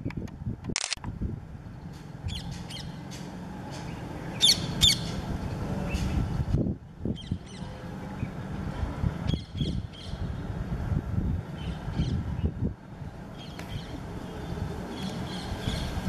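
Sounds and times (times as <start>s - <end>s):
birds calling harshly: 1.8s - 6.4s, 7.1s - 8.5s, 9.3s - 10.6s, 11.6s - 12.6s, 13.3s - 16.0s.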